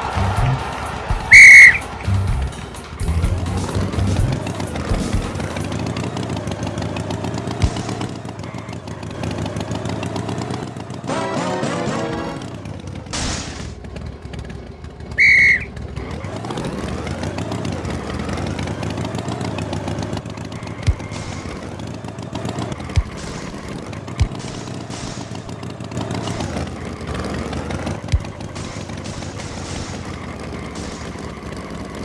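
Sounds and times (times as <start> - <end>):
loud whistle-like tone: 0.0 - 2.2, 15.2 - 15.8
engine sound effect: 0.0 - 32.0.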